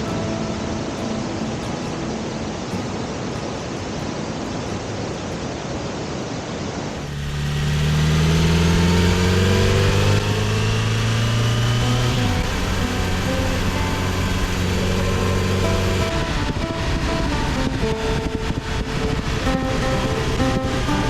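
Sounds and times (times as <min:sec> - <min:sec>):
steady rushing noise: 0:00.0 - 0:21.0
motorcycle engine pulling away: 0:07.0 - 0:21.0.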